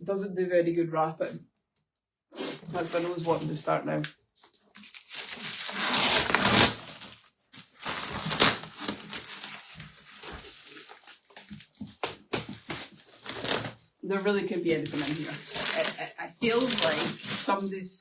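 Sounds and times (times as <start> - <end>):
wrapping paper tearing and crumpling: 2.4 - 13.8, 14.8 - 17.7.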